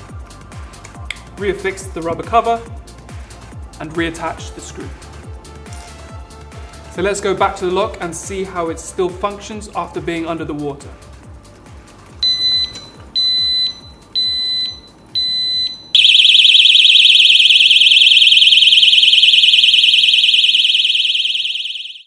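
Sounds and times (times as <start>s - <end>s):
short alarm beeps: 12.2s - 22.0s
warbling alarm siren: 15.3s - 22.0s.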